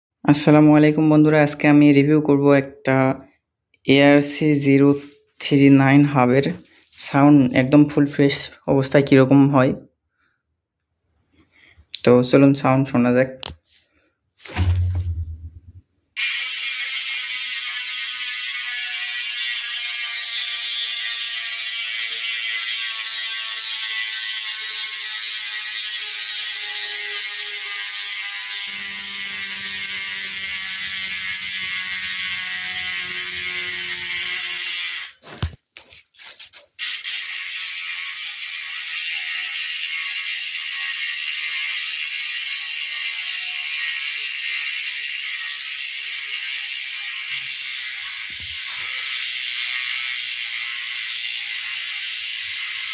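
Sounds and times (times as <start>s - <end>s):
bicycle hub freewheel clicking: 16.2s - 35.2s, 36.8s - 52.9s.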